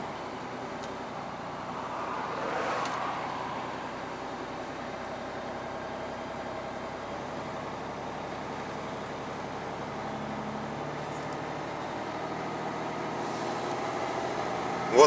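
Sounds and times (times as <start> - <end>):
truck diesel engine running: 3.2 - 15.0.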